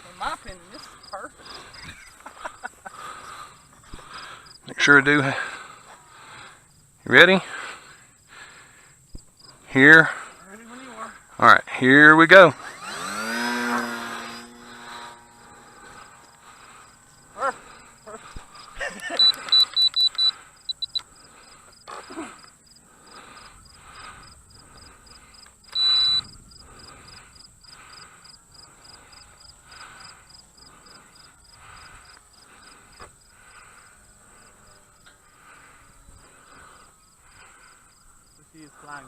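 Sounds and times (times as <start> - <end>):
insects chirping: 0.0 - 39.0
electronic beep: 19.1 - 21.0, 25.7 - 26.3
short beeps: 19.1 - 21.0, 25.7 - 26.4.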